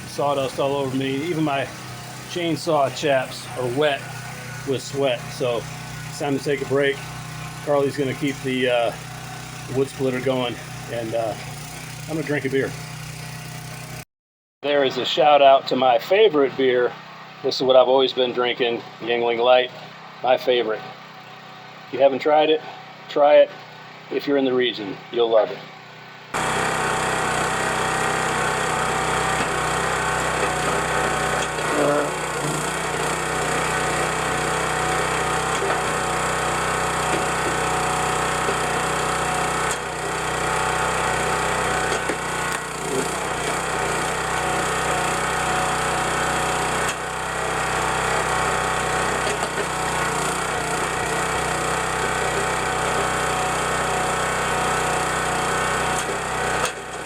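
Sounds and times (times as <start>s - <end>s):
log splitter engine running: 0.0s - 14.0s, 26.3s - 57.0s.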